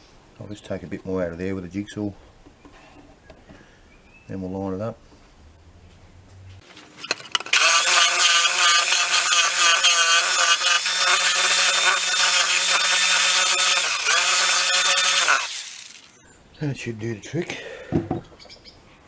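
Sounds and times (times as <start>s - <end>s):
electric jigsaw cutting wood: 6.6s - 16.2s.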